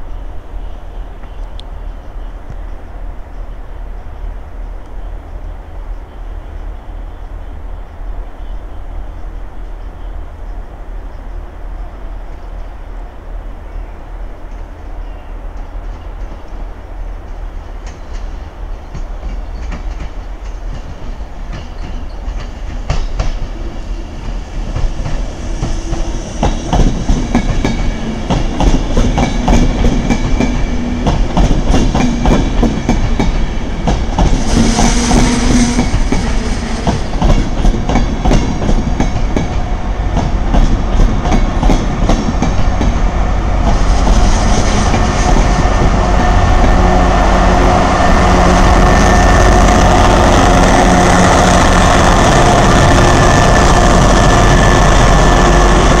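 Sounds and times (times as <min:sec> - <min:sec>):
passenger train rumbling past: 0:00.0 - 0:56.0
wheels clicking over rail joints: 0:17.3 - 0:23.6
diesel locomotive engine running: 0:23.6 - 0:56.0.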